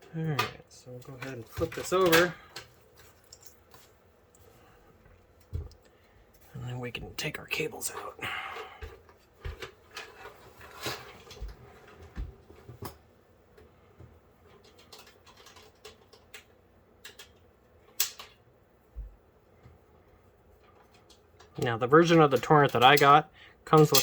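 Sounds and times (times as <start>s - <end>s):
cables and plastic connectors clicking: 14.5s - 18.4s, 20.6s - 24.0s.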